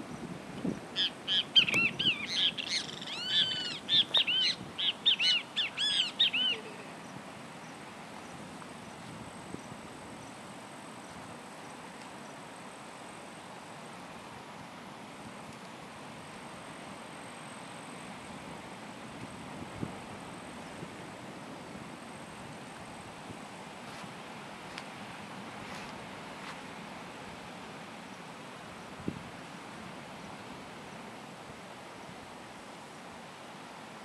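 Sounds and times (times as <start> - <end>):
faint outdoor background: 0.0 - 34.0
bird calling: 1.0 - 7.0.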